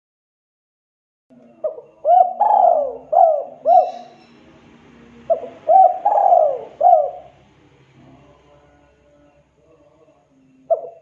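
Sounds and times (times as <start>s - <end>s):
dove cooing: 1.4s - 8.2s, 10.6s - 11.0s.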